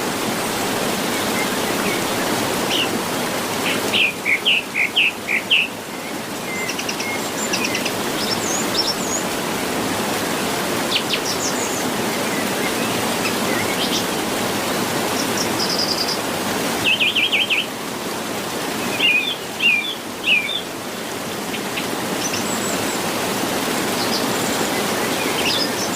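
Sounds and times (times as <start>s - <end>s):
songbirds chirping: 18.8s - 25.9s.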